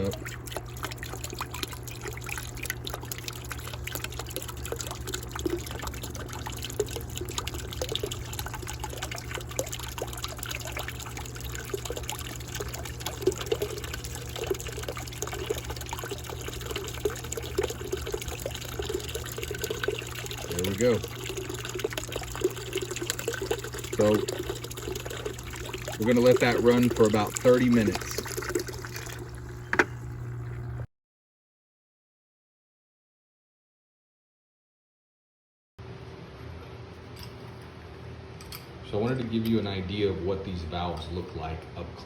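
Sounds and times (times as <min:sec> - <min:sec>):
pump humming: 0:00.0 - 0:30.9
water splashing into bucket: 0:00.0 - 0:30.9.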